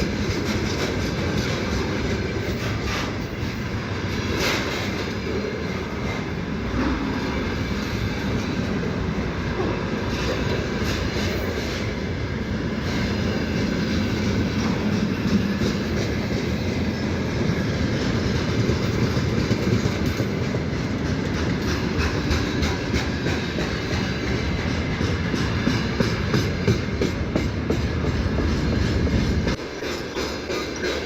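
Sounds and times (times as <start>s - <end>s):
freight train rumbling: 0.0s - 31.0s
wheels clacking over rail joints: 0.0s - 31.0s.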